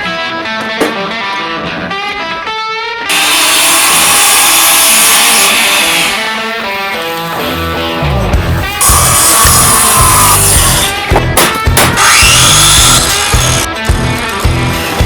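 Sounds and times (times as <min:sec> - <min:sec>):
rock music with electric guitar: 0:00.0 - 0:03.1, 0:06.2 - 0:15.0.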